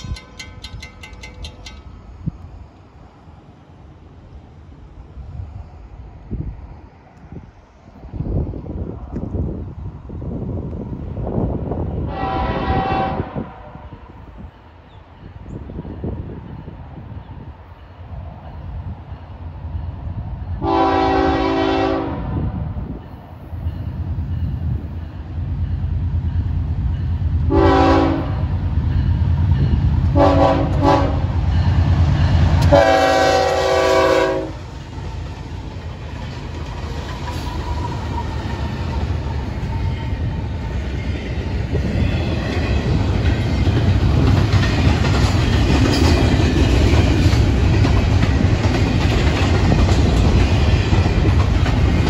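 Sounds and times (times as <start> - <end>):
train wheels clattering on rails: 0.0 - 2.5, 23.0 - 52.0
train horn blasts: 12.0 - 13.9, 20.6 - 22.6, 27.5 - 28.6, 30.1 - 31.8, 32.4 - 34.7.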